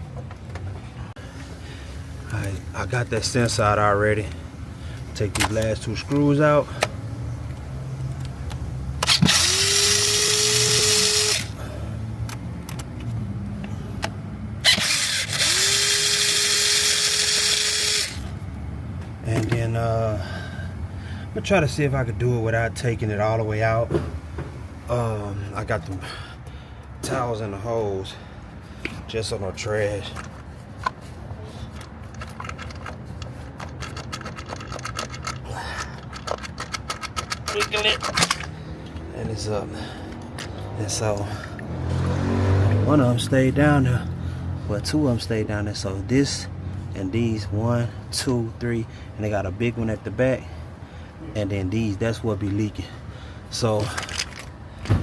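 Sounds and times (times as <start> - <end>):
power drill whining: 9.0 - 11.6, 14.6 - 18.2
oil filter housing clicking: 31.7 - 39.0.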